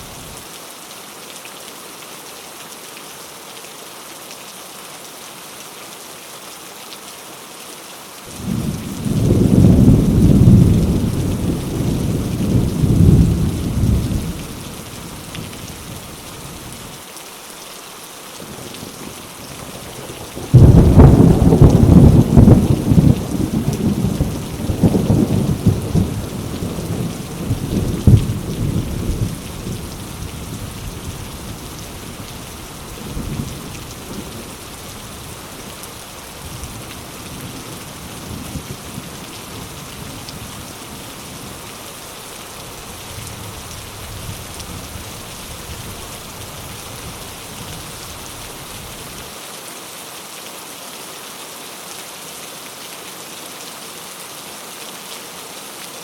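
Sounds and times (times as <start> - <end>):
heavy rain on leaves: 0.0 - 56.0
thunder rumbling: 8.4 - 14.6, 19.7 - 32.2.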